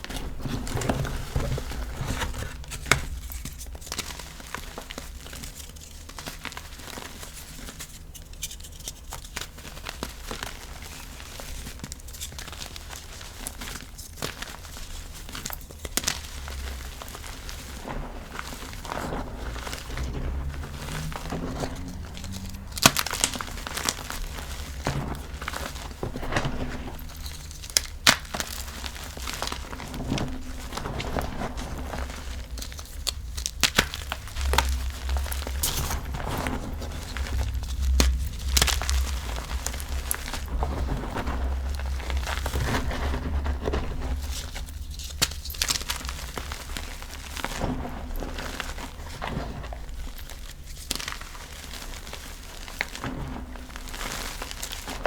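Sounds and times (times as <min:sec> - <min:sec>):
faint low rumble: 0:14.3 - 0:55.0.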